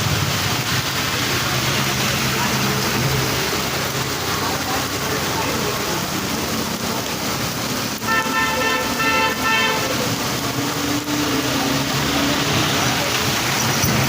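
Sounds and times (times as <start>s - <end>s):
vehicle horn short toots: 8.1s - 9.9s.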